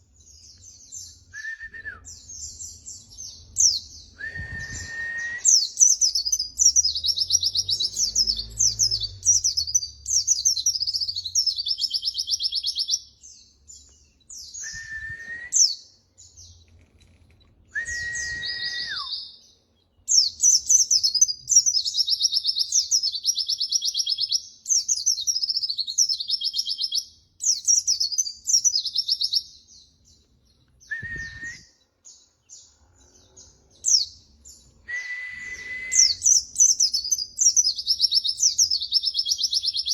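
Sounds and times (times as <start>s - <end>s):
low whistled bird note: 4.2s - 5.7s, 14.3s - 15.8s, 17.7s - 19.3s, 30.8s - 31.8s, 34.8s - 36.4s
white-eye bird warbling and trilling: 5.5s - 14.7s, 36.0s - 39.9s.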